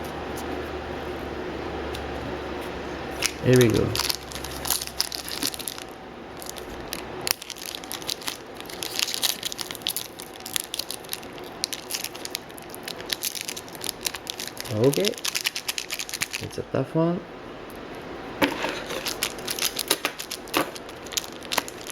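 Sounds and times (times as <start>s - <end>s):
wrapper tearing and crinkling: 3.2s - 16.5s, 18.4s - 21.9s.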